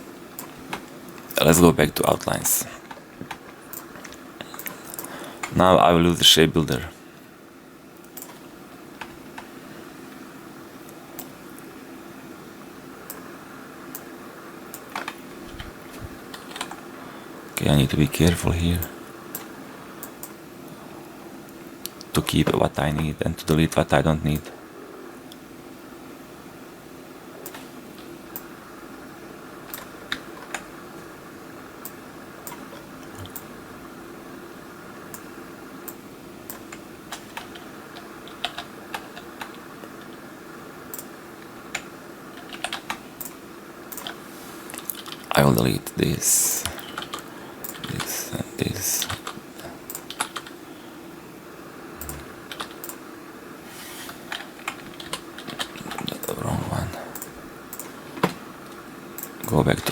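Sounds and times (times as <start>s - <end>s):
computer fan hum: 0.0s - 59.9s
computer keyboard clicks: 8.0s - 8.4s, 14.7s - 15.6s, 16.3s - 16.8s, 29.7s - 30.7s, 31.8s - 33.5s, 35.9s - 40.2s, 40.9s - 41.1s, 41.7s - 45.3s, 46.6s - 48.0s, 49.0s - 50.6s, 52.0s - 53.0s, 54.3s - 56.4s.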